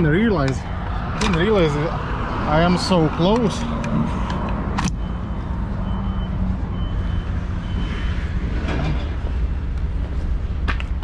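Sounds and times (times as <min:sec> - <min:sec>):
diesel engine rumbling: 0:00.0 - 0:11.0
reversing alarm beeps: 0:04.9 - 0:08.4.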